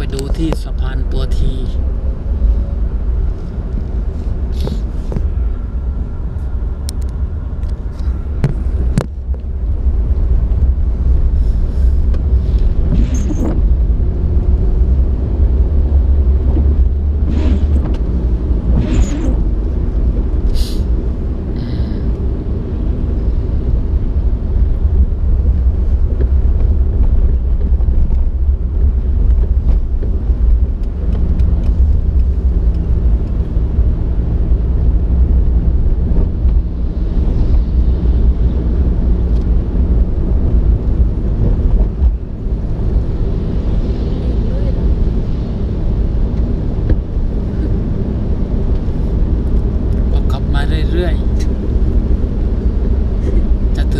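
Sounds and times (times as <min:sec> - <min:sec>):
moving vehicle rumble: 0:00.0 - 0:53.9.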